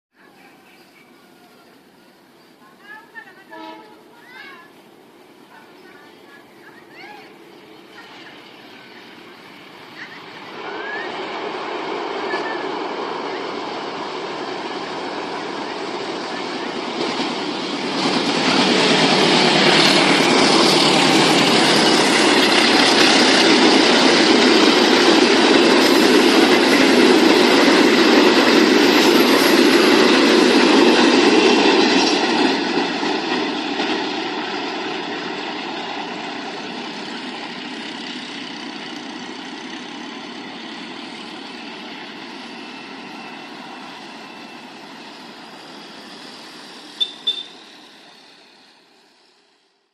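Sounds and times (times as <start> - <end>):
train wheels rushing on rail: 0.2 - 49.9.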